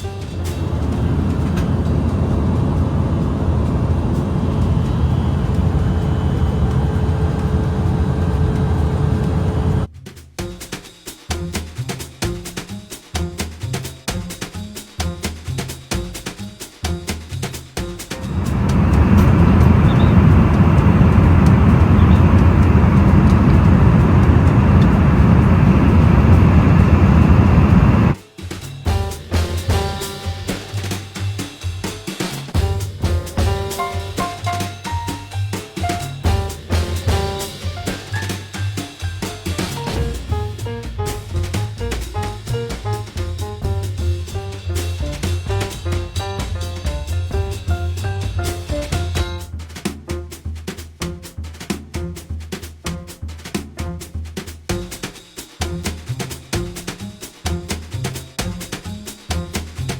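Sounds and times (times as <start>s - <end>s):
jet engine rumble and air rush: 0.0s - 9.9s, 18.1s - 28.2s, 32.4s - 49.1s
faint steady hum: 18.3s - 28.2s.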